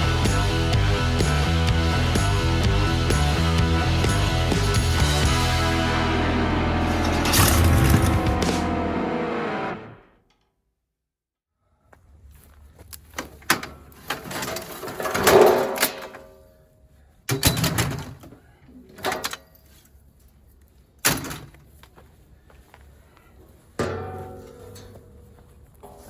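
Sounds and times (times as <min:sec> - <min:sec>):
metal scraping: 0:04.9 - 0:10.1
metal clanks and thuds: 0:06.9 - 0:08.7.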